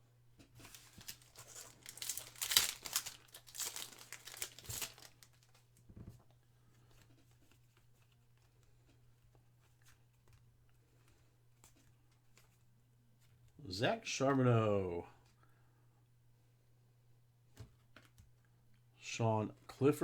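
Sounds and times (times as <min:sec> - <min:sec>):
card pack wrapper tearing and crinkling: 0:00.6 - 0:05.6.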